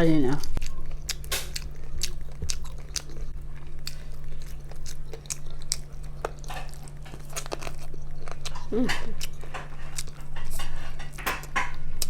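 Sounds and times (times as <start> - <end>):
chewing crispy fried chicken: 0.3 - 12.0.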